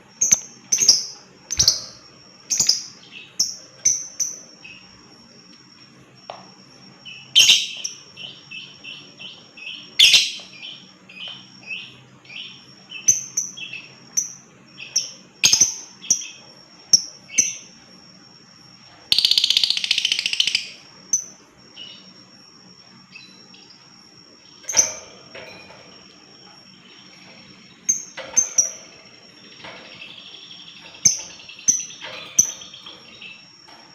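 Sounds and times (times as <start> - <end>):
bird rattling trill: 19.1 - 21.4, 24.4 - 33.9
lovebirds chirping: 19.1 - 33.9.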